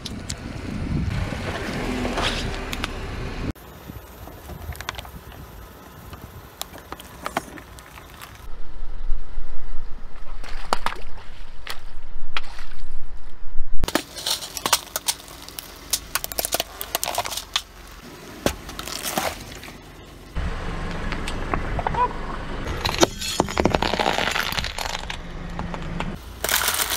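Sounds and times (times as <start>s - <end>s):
tyre crushing objects: 13.8s - 19.8s, 22.7s - 26.9s
plastic bottles splitting and squirting: 13.9s - 17.7s, 22.8s - 25.2s, 26.2s - 26.9s.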